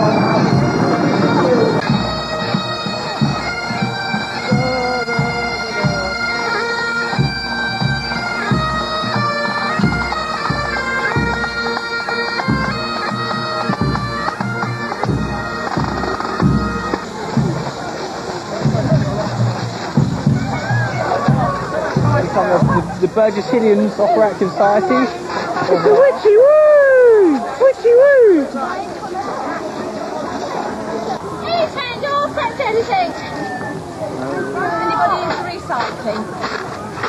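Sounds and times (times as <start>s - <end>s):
low drum beat: 0.0s - 6.5s, 7.1s - 27.4s
bagpipes playing march: 0.0s - 26.6s.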